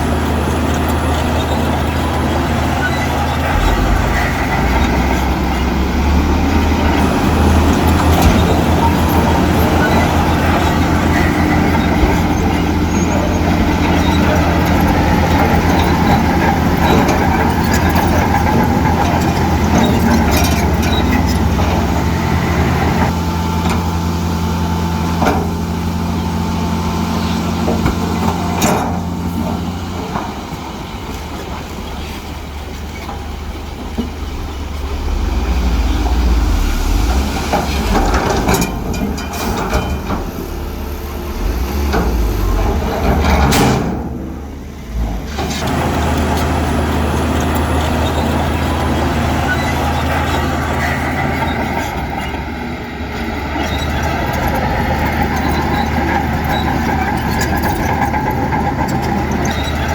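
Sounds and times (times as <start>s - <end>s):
diesel engine running under load: 0.0s - 59.9s
sharp metallic clanks: 3.4s - 10.2s.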